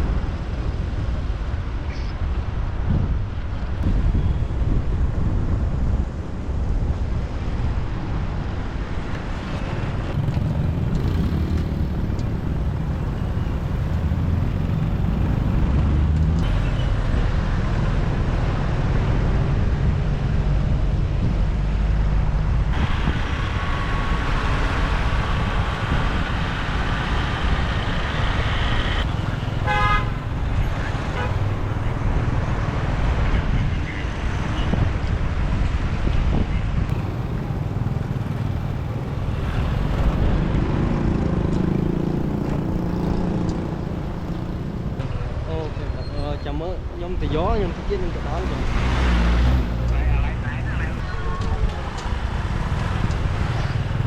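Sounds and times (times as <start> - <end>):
road noise: 0.0 - 54.0
surrounding traffic: 0.0 - 54.0
motorbike engine running: 10.2 - 17.2.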